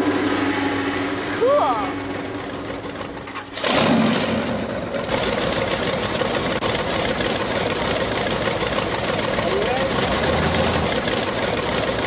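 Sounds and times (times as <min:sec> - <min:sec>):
monster truck engine running: 0:00.0 - 0:12.0.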